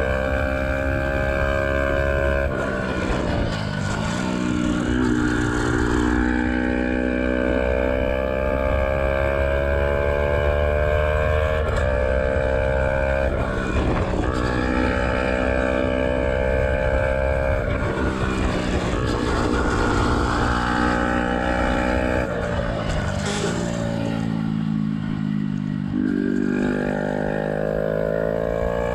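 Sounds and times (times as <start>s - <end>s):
motorcycle engine revving through gears: 0.0s - 28.9s
low wind rumble: 11.6s - 26.2s.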